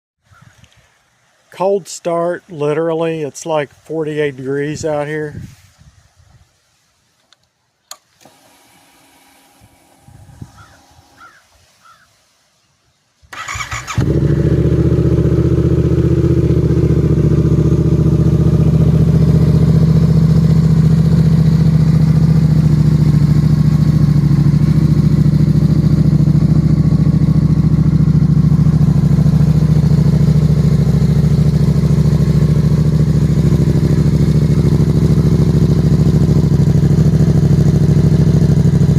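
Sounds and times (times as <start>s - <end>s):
click: 0.6s - 0.8s, 7.2s - 8.4s
motorcycle engine idling: 9.7s - 11.4s, 13.4s - 38.9s
motorcycle starter cranking: 13.3s - 15.6s.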